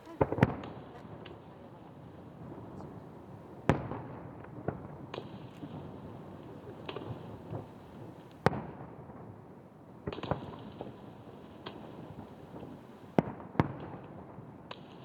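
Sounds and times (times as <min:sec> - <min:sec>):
fireworks bursting: 0:00.0 - 0:08.4.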